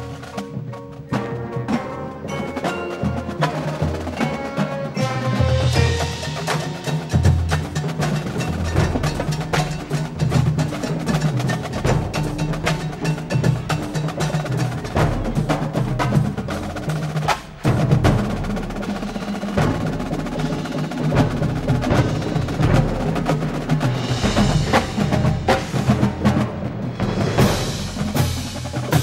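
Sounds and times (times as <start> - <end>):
marching percussion: 0.0 - 29.0
brass chords: 1.1 - 7.6.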